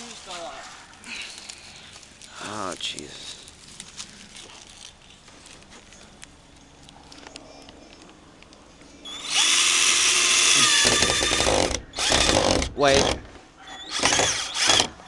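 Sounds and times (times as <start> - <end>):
power drill driving screw: 9.1 - 15.0.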